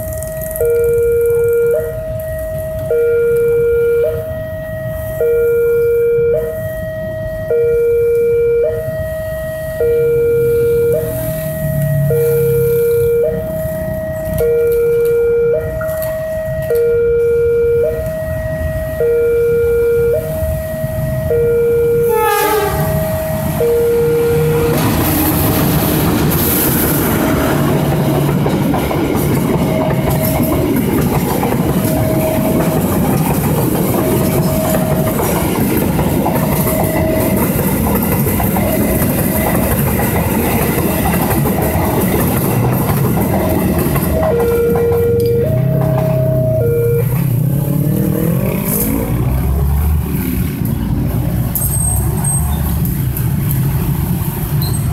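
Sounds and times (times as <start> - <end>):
level-crossing warning bell: 0.0 - 50.6
road traffic engines: 0.0 - 54.9
train horn: 21.4 - 25.2
train wheels rumbling on rails: 22.0 - 54.9.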